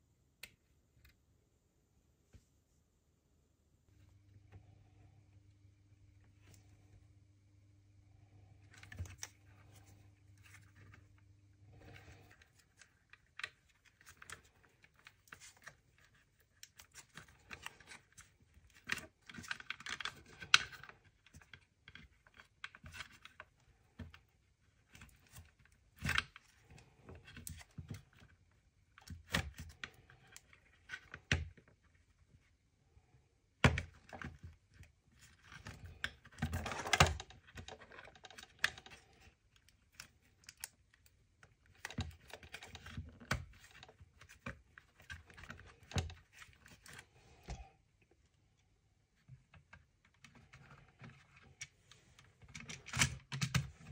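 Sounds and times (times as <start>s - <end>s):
faint steady hum: 0.0s - 53.9s
clicks and taps of plastic parts: 52.3s - 53.9s.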